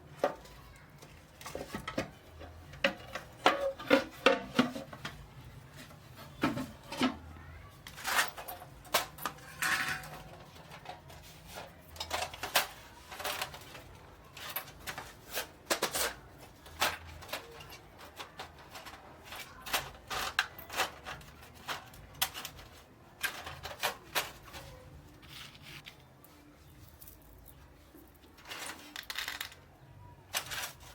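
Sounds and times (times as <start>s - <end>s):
small parts clicking and tapping: 7.8s - 26.1s, 27.0s - 30.9s.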